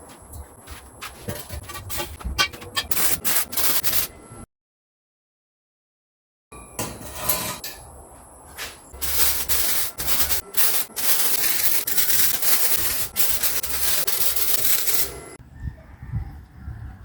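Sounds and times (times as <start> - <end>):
wood being sanded: 2.8 - 4.1, 9.0 - 15.3.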